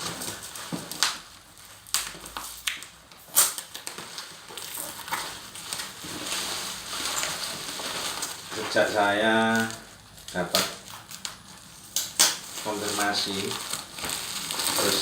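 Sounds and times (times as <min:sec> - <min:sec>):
packaging crinkling and rustling: 0:00.0 - 0:15.0
packaging tearing: 0:00.0 - 0:15.0.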